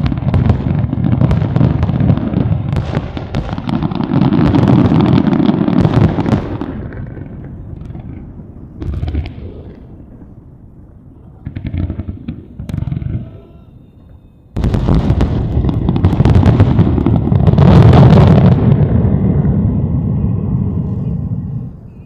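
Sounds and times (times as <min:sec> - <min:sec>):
fireworks bangs and crackle: 0:00.0 - 0:22.0
fireworks booms: 0:00.0 - 0:22.0
deep rumble: 0:15.5 - 0:22.0.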